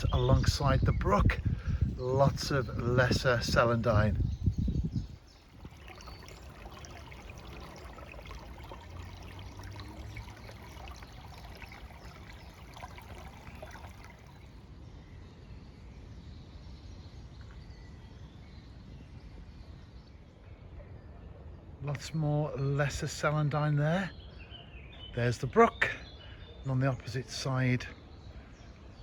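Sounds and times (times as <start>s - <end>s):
brook trickling: 0.0s - 14.9s, 25.1s - 28.7s.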